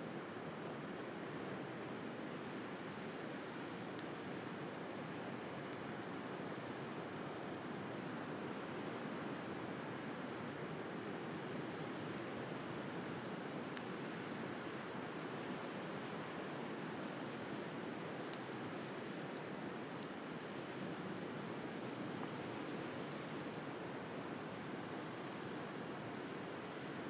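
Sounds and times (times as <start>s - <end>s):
bonfire crackling: 0.4s - 4.3s, 16.5s - 25.6s.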